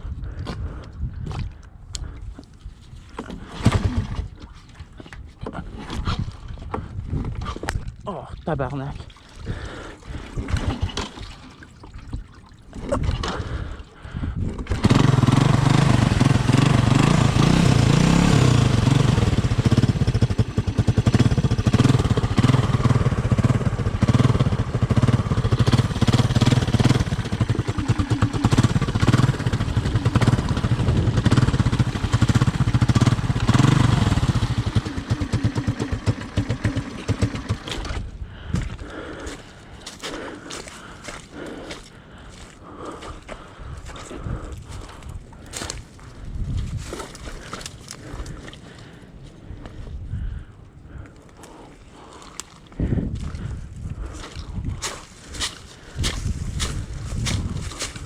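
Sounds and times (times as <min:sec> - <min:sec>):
engine starting and running: 0:03.2 - 0:06.7, 0:10.2 - 0:11.6, 0:14.5 - 0:39.1.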